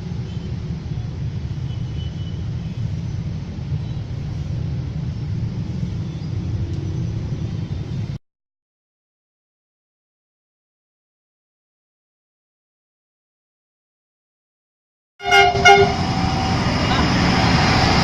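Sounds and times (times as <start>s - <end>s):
train rumbling past: 15.2s - 18.0s.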